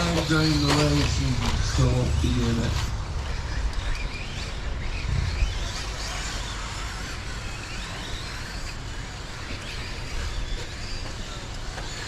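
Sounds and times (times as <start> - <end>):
electric motors whining: 0.0 - 12.0
low rumble: 1.2 - 6.0.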